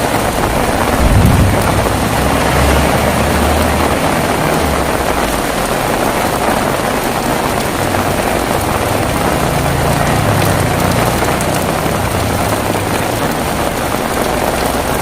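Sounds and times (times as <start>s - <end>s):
heavy rain: 0.0s - 15.0s
low rumble of thunder: 0.2s - 6.8s.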